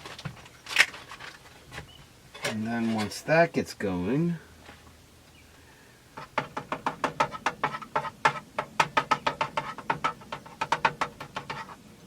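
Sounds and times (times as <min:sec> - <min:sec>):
utensil scraping a frying pan: 0:06.2 - 0:12.0.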